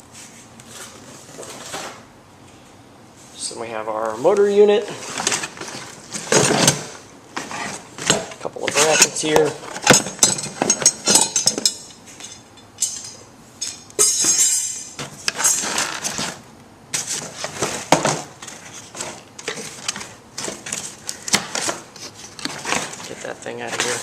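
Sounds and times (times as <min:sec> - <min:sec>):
metal parts clinking and rattling: 0:08.8 - 0:16.1
packaging rustling: 0:17.0 - 0:24.0.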